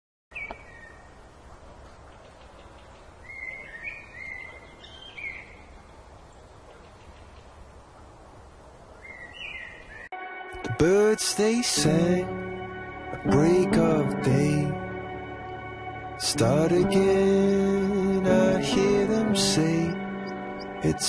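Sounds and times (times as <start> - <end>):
birds whistling calls: 0.3 - 1.1, 2.6 - 5.8, 9.0 - 10.1
steady background hiss: 0.3 - 21.0.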